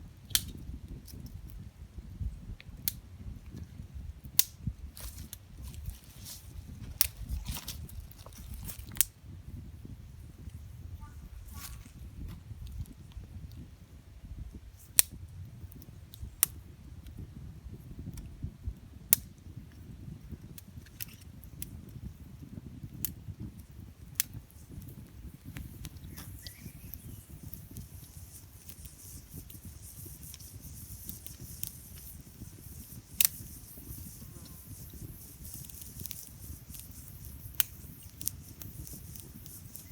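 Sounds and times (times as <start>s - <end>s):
campfire crackling and popping: 4.2s - 39.9s
high hiss: 24.4s - 39.9s.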